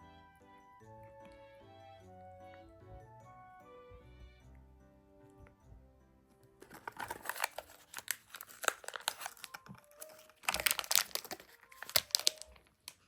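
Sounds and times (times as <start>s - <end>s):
soft background music: 0.0s - 13.0s
plastic packet crinkling: 6.6s - 13.0s.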